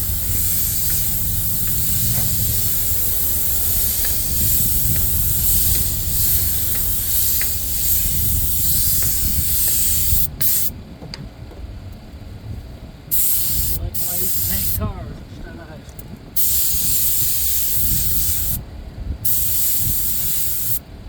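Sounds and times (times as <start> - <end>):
low rumble: 0.0 - 10.2
spray gun hissing: 0.0 - 10.7, 13.1 - 14.8, 16.4 - 18.6, 19.2 - 20.8.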